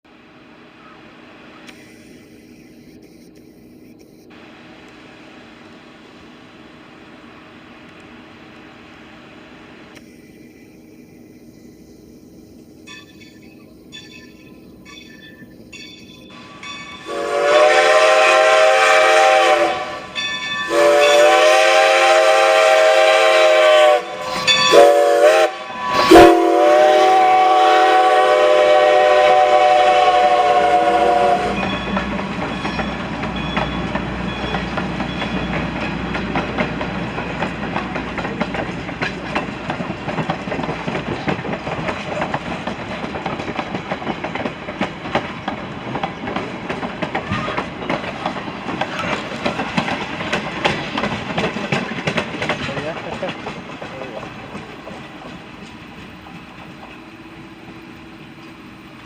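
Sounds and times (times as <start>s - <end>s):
train rumbling by: 4.3s - 59.0s
steam whistle blasts: 17.0s - 32.0s
wheel clatter on rails: 31.6s - 57.1s.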